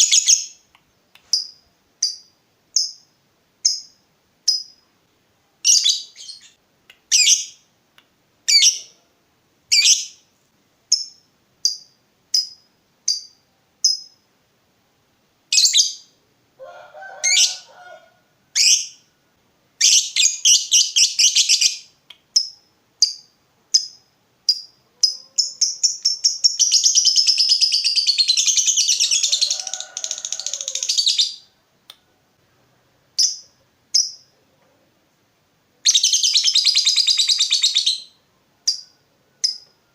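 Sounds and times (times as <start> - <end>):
lovebird chirping and trilling: 0.0 - 0.6, 1.3 - 3.0, 3.6 - 4.8, 5.6 - 7.6, 8.5 - 9.0, 9.7 - 10.2, 10.9 - 14.2, 15.5 - 16.1, 17.2 - 17.7, 18.6 - 19.1, 19.8 - 31.5, 33.2 - 34.3, 35.8 - 39.7.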